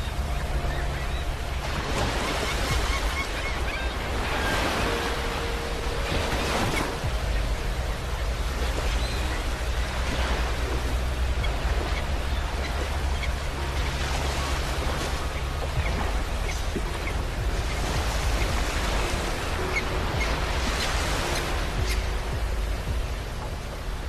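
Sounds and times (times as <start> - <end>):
sea waves breaking on beach: 0.0 - 24.0.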